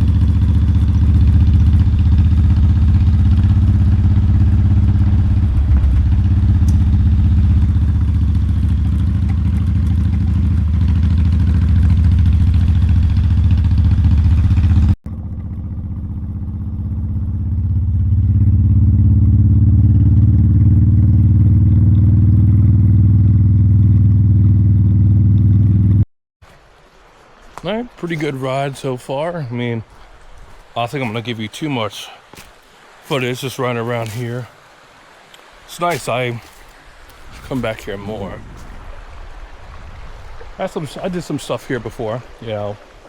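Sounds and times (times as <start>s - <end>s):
motorcycle engine running: 0.0s - 26.0s, 35.8s - 38.8s
wind rushing: 35.8s - 41.3s.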